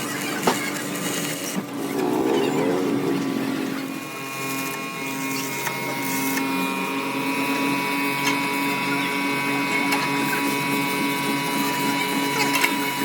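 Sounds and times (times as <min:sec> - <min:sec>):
machine humming: 0:01.6 - 0:05.2.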